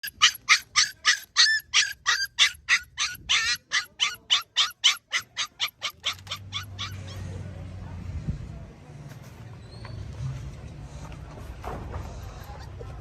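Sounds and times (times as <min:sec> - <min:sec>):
puppy yelping: 0:00.0 - 0:07.2.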